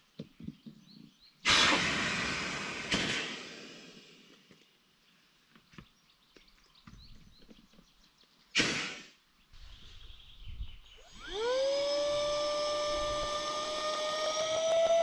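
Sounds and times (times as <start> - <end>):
electric air pump whining: 1.5 - 4.1, 11.0 - 15.0.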